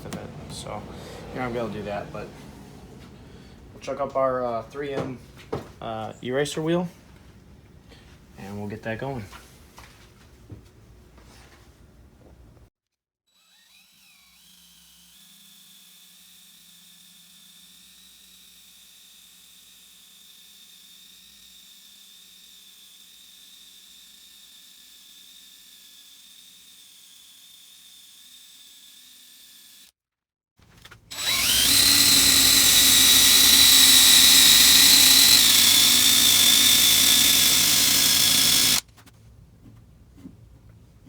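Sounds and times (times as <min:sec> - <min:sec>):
drill whining: 0:13.4 - 0:29.9, 0:31.1 - 0:38.9.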